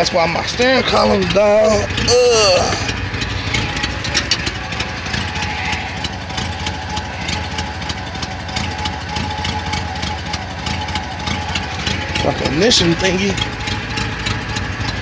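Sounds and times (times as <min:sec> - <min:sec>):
car engine idling: 0:00.0 - 0:15.0
power steering pump whine: 0:00.0 - 0:15.0.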